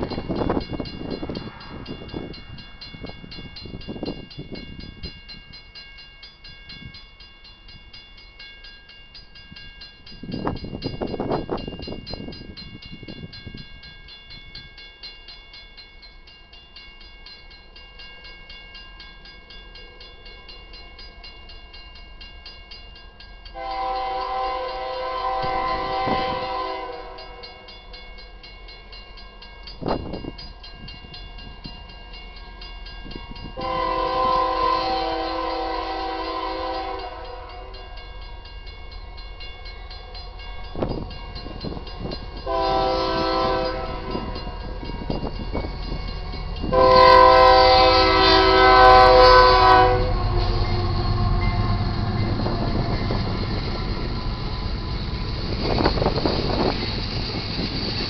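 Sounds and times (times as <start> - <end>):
train rumbling: 0.0 - 8.5, 9.2 - 58.0
locomotive air horn blasts: 23.6 - 27.5, 33.6 - 37.8, 42.4 - 44.6, 46.7 - 52.1.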